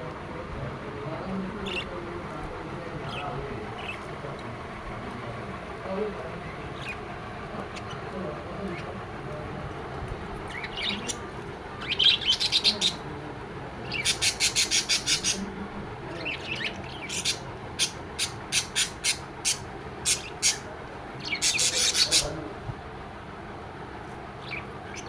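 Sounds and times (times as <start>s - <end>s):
lovebirds chirping: 3.0s - 4.1s, 6.2s - 9.0s, 10.3s - 13.1s, 13.8s - 15.5s, 16.1s - 22.5s, 24.3s - 25.0s.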